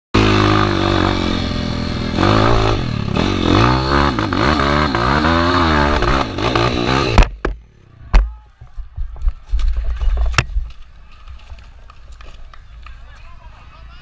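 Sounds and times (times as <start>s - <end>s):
dirt bike engine revving: 0.2s - 8.0s.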